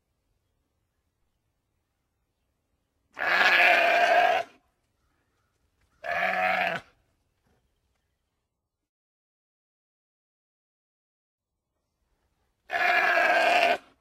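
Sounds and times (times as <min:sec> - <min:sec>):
sheep bleating: 0:03.2 - 0:04.6, 0:06.0 - 0:06.9, 0:12.7 - 0:13.9.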